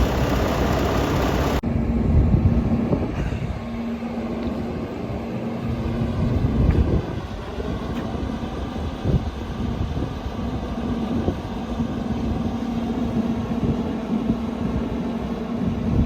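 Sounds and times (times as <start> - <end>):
steady hum: 0.0 - 1.6
vehicle engine rumbling: 0.0 - 1.6.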